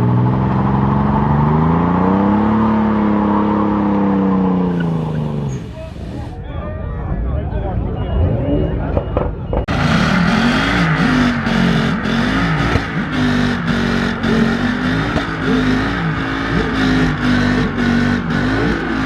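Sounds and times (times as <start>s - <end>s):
car engine revving: 0.0s - 5.8s, 9.7s - 19.0s
tyre squeal: 3.2s - 6.0s.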